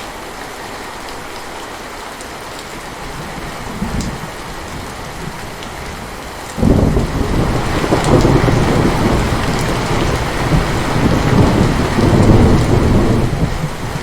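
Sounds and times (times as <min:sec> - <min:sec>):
heavy rain: 0:00.0 - 0:14.0
rolling thunder: 0:03.1 - 0:14.0.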